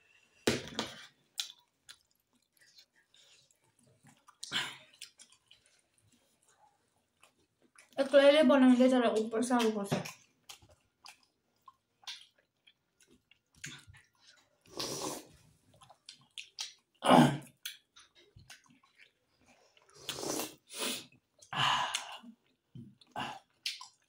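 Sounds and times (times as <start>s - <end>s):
chewing mouth clicks: 1.4s - 6.4s, 9.6s - 15.0s, 15.7s - 20.4s, 23.0s - 24.0s.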